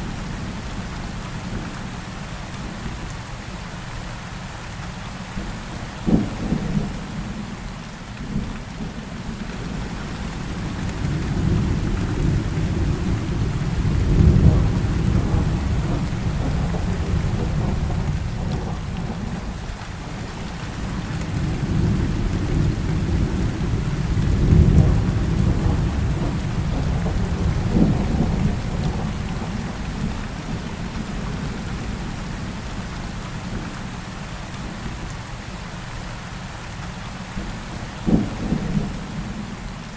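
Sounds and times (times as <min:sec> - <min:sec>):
heavy rain falling: 0:00.0 - 0:39.9
deep rolling thunder: 0:10.5 - 0:32.5, 0:38.0 - 0:39.5
sharp thunderclap: 0:20.9 - 0:29.8.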